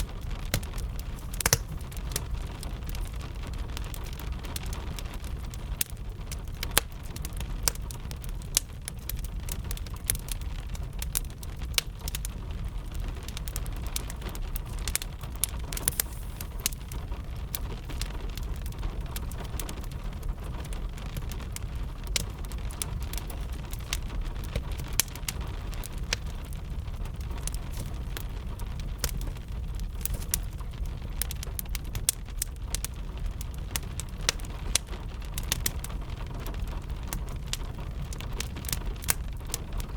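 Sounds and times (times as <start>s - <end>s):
steady rain hiss: 0.0s - 39.9s
wood fire crackling: 0.0s - 39.9s
low rumble: 39.4s - 39.9s.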